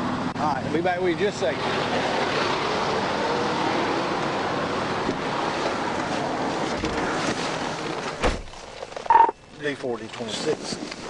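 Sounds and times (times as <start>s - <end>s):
roadside traffic rushing: 0.0s - 11.0s
sharp thump: 8.2s - 8.5s.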